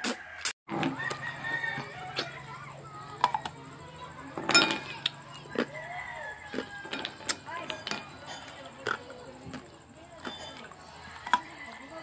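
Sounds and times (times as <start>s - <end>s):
person chewing: 4.9s - 11.4s.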